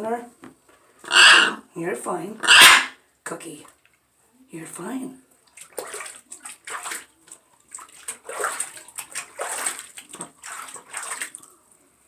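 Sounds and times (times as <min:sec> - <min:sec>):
water splashing and sloshing: 0:05.2 - 0:11.9.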